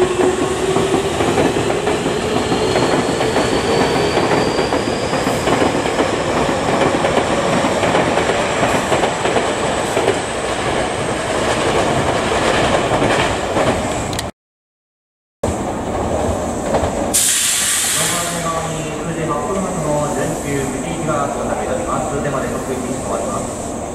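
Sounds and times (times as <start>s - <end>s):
train wheels rolling on rails: 0.0s - 14.3s, 15.5s - 23.9s
burst of hiss: 17.1s - 18.6s.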